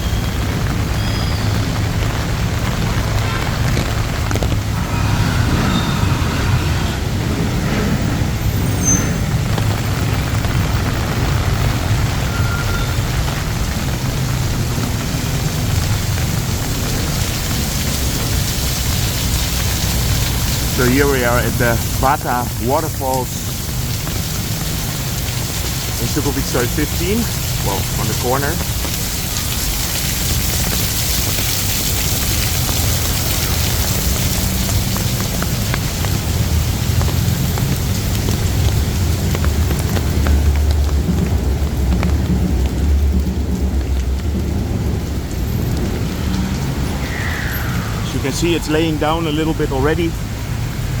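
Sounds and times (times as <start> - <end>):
heavy rain on a street: 0.0 - 51.0
low rumble: 3.8 - 10.6.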